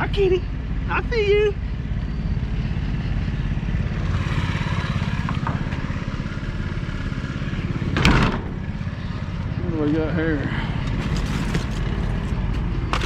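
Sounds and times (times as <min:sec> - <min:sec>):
vehicle engine idling: 0:00.0 - 0:13.0
loud clunk: 0:07.9 - 0:08.6, 0:11.0 - 0:13.0.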